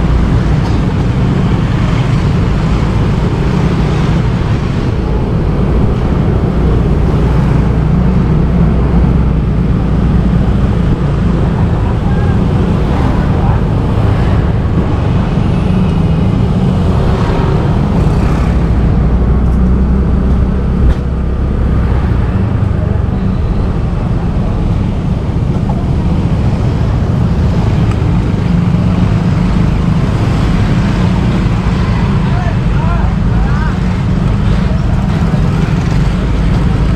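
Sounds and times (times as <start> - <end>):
motorbike engine and road rumble: 0.0 - 36.9.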